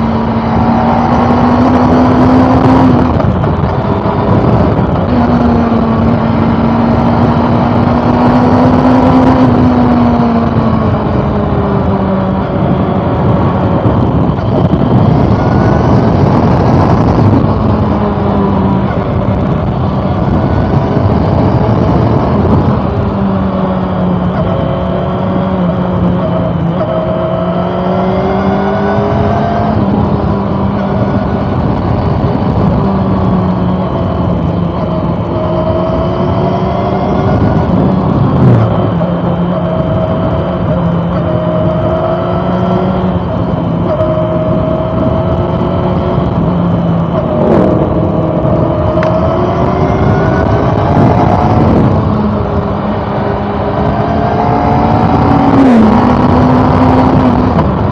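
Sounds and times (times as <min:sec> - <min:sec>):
motorcycle engine accelerating: 0:00.0 - 0:57.9
wind and road noise: 0:00.0 - 0:57.9.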